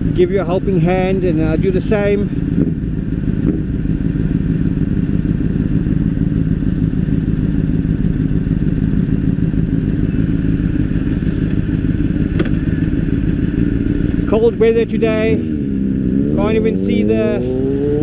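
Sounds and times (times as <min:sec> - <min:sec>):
motorcycle engine droning: 0:00.0 - 0:18.0.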